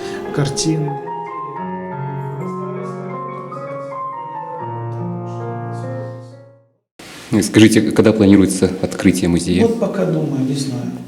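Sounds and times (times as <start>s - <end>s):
slow piano music: 0.0s - 6.9s.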